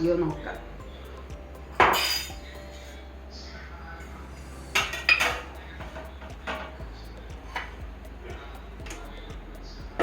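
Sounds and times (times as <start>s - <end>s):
metal pot and lid clanking: 1.8s - 2.4s.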